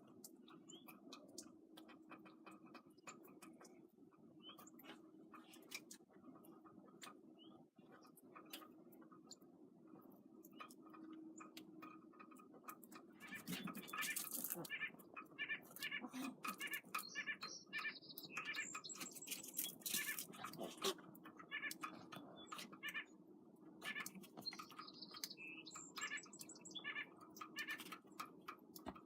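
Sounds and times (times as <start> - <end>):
high-pitched animal calls: 26.0 - 27.9.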